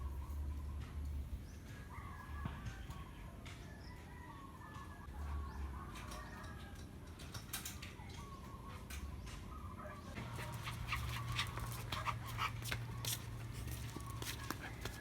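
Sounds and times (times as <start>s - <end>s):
birds calling: 7.9s - 15.0s.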